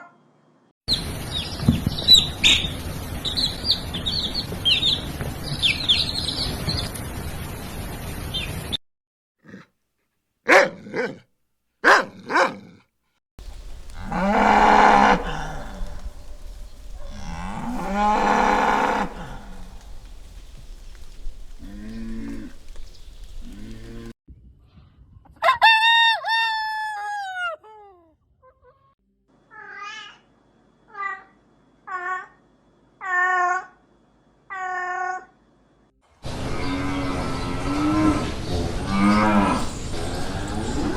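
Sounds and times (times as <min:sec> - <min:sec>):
cow mooing: 0:13.4 - 0:24.1
farm animal calls: 0:13.4 - 0:24.1.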